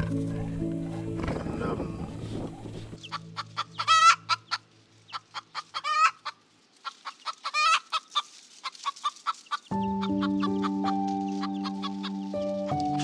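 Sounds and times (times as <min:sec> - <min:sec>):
fowl wavering calls: 0:00.0 - 0:13.0
fowl clucking: 0:02.9 - 0:13.0.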